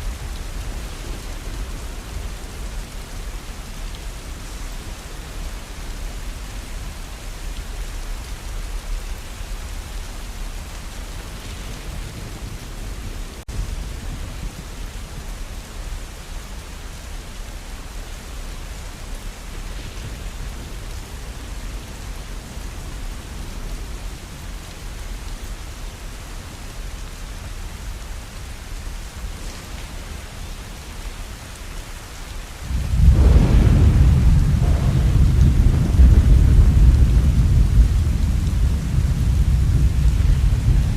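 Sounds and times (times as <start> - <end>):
steady rain: 0.0 - 40.9
thunder rolling: 32.6 - 40.9.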